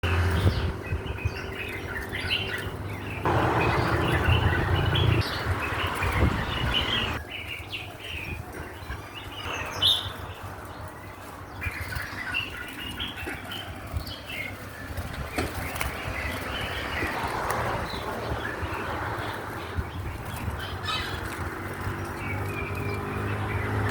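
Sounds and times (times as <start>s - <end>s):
small birds chirping: 0.0s - 23.9s
wings flapping: 9.7s - 22.6s.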